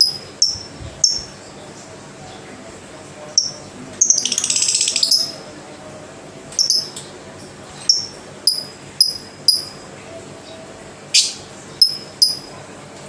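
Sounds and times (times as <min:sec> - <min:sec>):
lovebird chirping: 0:00.0 - 0:01.4, 0:03.4 - 0:05.4, 0:06.6 - 0:07.0, 0:07.9 - 0:09.8, 0:11.1 - 0:12.5.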